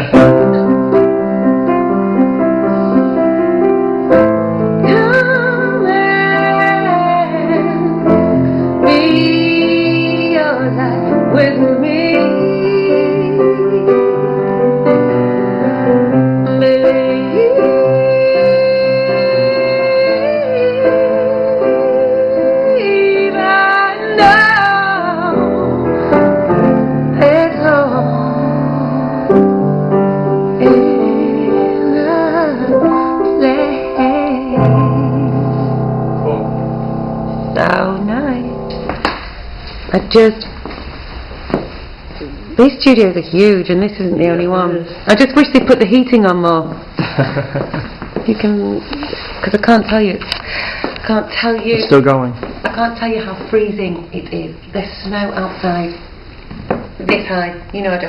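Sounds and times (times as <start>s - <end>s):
piano playing slow chords: 0.0s - 42.9s
woman singing long notes: 8.8s - 14.2s, 16.5s - 25.6s, 30.6s - 35.8s.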